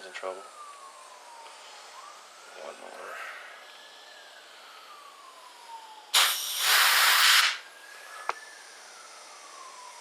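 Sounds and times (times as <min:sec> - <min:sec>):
distant siren wailing: 0:00.0 - 0:10.0
pressurised air hissing: 0:06.1 - 0:07.6.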